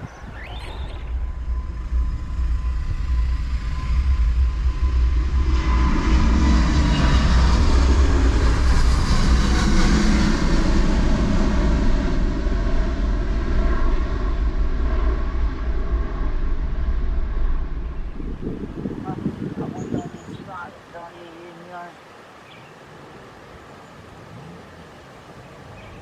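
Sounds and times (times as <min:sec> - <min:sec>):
jet engines at takeoff thrust: 0:00.0 - 0:26.0.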